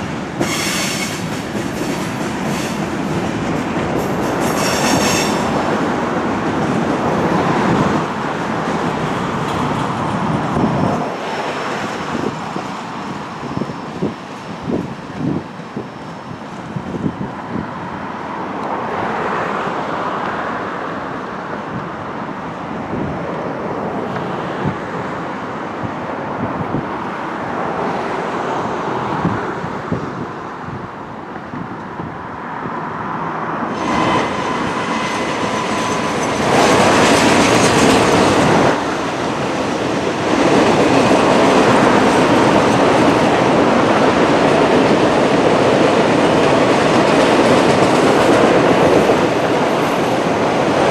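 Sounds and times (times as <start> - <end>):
freight train cars rolling past: 0.0 - 18.1, 32.7 - 50.9
heavy train rumble: 0.0 - 50.9.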